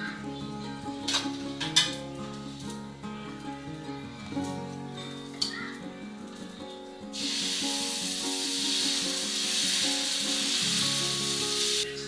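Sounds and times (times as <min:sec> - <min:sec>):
background music: 0:00.0 - 0:12.0
loud steady hiss: 0:07.1 - 0:12.0.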